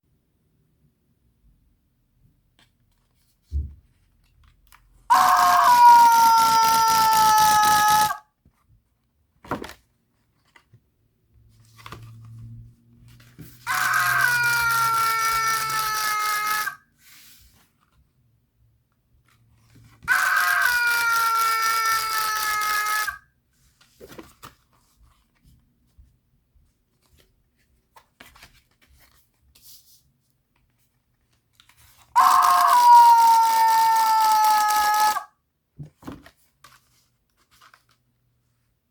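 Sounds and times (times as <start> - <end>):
greeting card sound chip cry: 5.1 - 8.2, 13.7 - 16.8, 20.1 - 23.2, 32.2 - 35.3.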